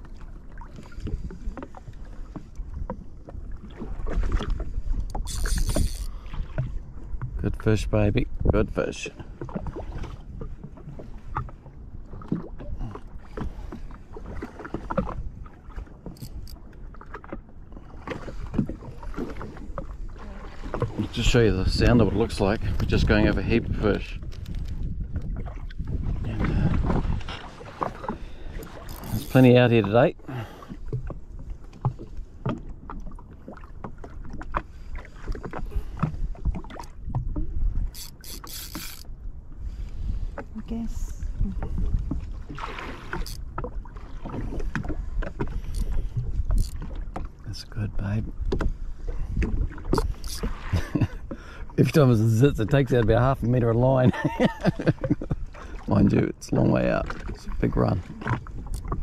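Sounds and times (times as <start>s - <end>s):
water slapping against hull: 0.0s - 59.0s
wind on microphone: 2.6s - 8.8s, 18.4s - 29.4s, 35.4s - 51.4s
water rushing: 12.1s - 24.2s, 25.4s - 30.7s, 51.8s - 59.0s.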